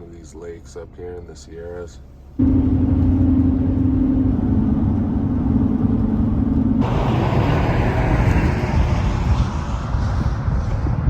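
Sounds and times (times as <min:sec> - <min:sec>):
road and wind noise: 0:02.1 - 0:11.0
car engine running: 0:02.2 - 0:08.9.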